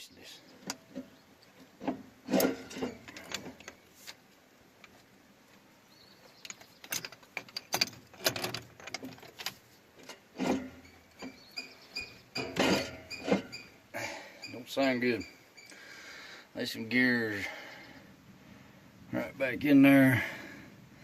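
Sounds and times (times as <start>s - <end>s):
transmission clunking and clattering: 0.6s - 3.8s, 6.3s - 15.7s.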